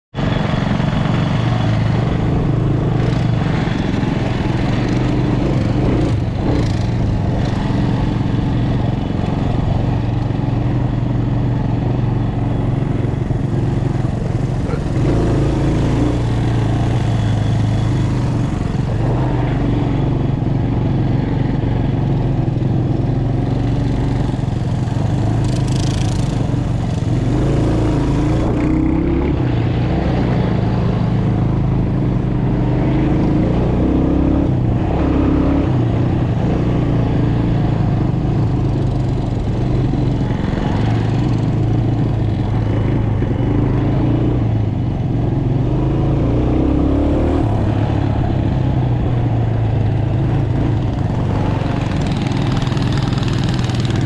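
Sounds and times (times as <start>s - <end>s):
mini bike engines running: 49.9s - 54.0s.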